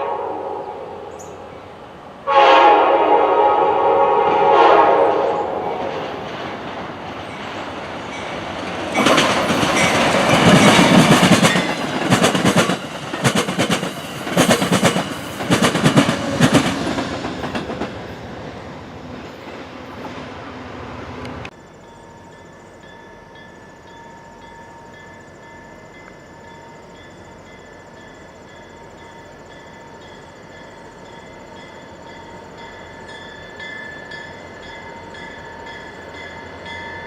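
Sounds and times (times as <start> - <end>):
train air horn chord: 0.0 - 1.5, 2.2 - 6.1
train passing with loud rush: 0.0 - 37.0
train wheels clickety-clack: 5.2 - 20.2.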